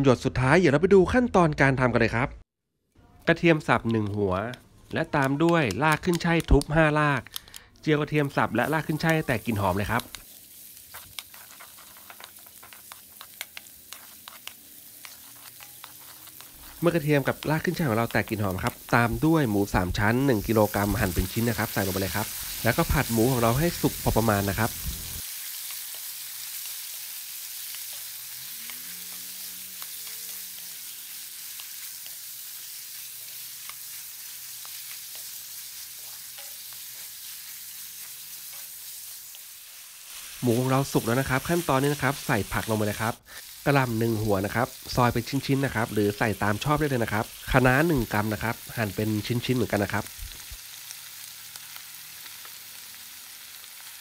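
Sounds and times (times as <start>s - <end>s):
oil spattering crackles: 3.2s - 54.0s
garlic frying in hot oil: 3.8s - 54.0s
wooden spatula scraping a pan: 10.9s - 16.9s.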